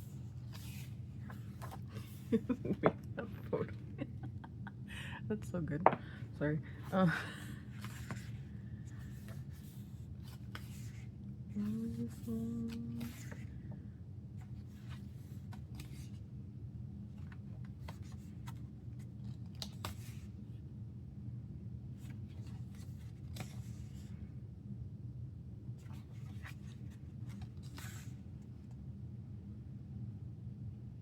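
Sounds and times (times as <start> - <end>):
paper pages rustling: 0.0 - 4.3, 7.6 - 13.6, 14.4 - 16.3, 17.1 - 20.4, 22.0 - 24.1, 25.8 - 28.4
low background hum: 0.0 - 31.0.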